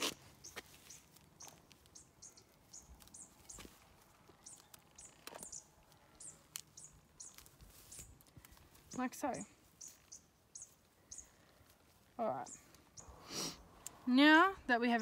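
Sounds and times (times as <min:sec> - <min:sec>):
small bird chirping: 0:00.0 - 0:11.6.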